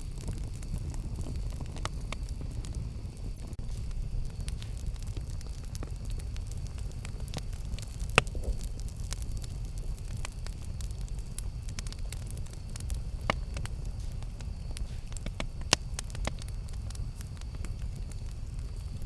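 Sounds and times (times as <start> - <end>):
campfire low rumble: 0.0 - 19.0
campfire pops and snaps: 0.0 - 19.0.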